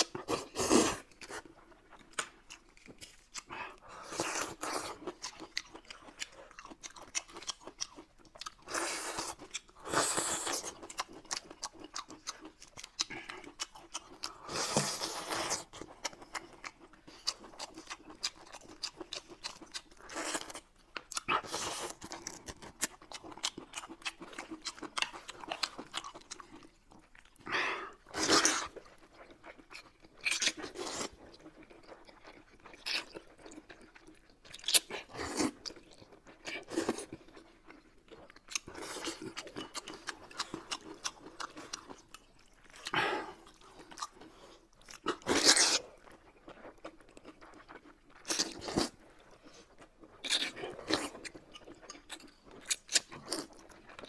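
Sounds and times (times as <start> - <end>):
crunchy chewing and biting: 0.0 - 27.4, 28.1 - 54.0.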